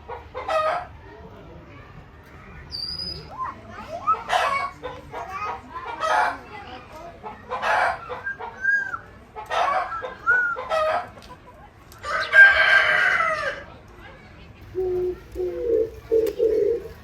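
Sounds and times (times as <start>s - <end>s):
chickens calling: 7.2s - 13.6s, 14.6s - 17.0s
rooster crowing: 12.1s - 13.6s.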